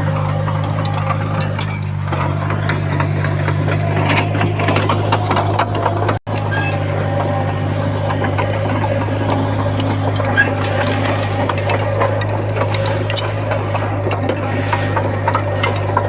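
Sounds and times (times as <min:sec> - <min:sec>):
diesel engine running: 0:00.0 - 0:16.0
metal and stone clanks: 0:08.2 - 0:16.0.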